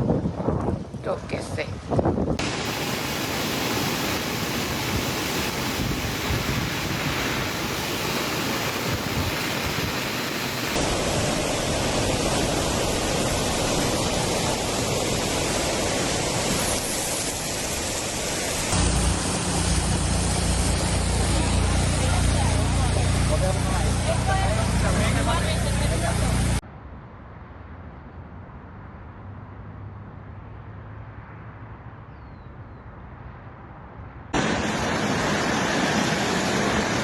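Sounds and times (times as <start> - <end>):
rushing floodwater roar: 2.4 - 26.6, 34.4 - 37.0.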